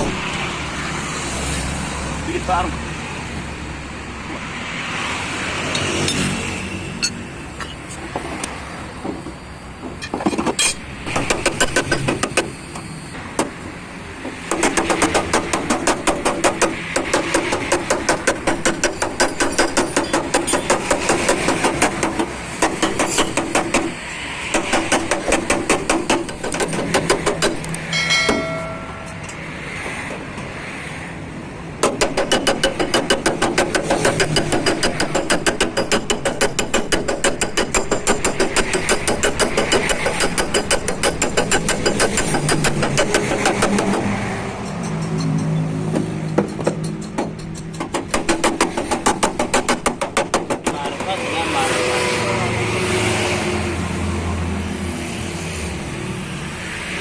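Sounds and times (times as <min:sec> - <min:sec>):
chime-like tone: 0:27.9 - 0:29.4.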